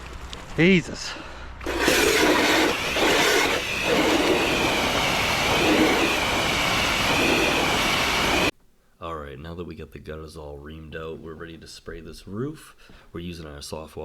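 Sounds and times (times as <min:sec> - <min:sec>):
high-pressure water spray: 0:01.6 - 0:08.5.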